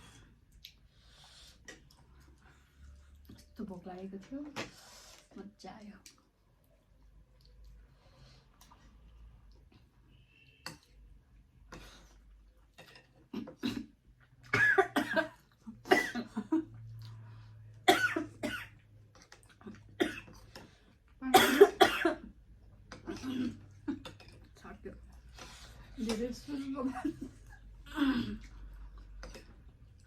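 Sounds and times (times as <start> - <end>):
person coughing: 14.6 - 16.5, 17.9 - 18.7, 21.3 - 22.3, 23.0 - 23.7.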